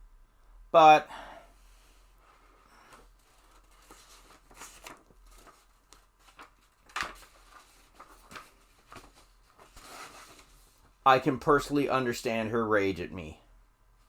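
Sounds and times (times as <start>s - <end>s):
faint rustles and clicks: 1.9s - 11.0s.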